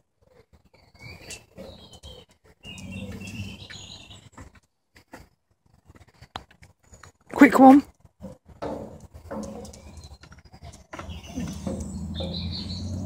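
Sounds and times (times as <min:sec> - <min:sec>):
birds chirping: 0:00.2 - 0:04.8, 0:05.9 - 0:13.0
short knocks: 0:08.2 - 0:10.2, 0:10.9 - 0:13.0.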